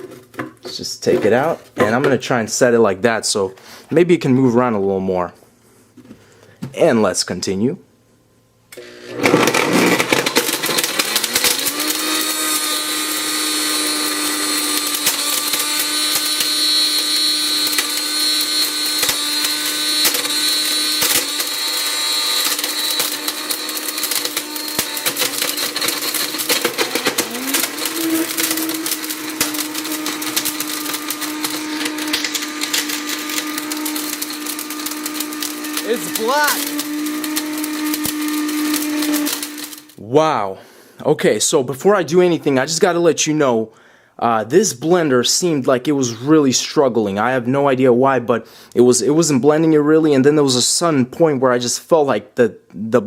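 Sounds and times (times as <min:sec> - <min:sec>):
blender motor running: 0:08.7 - 0:40.0.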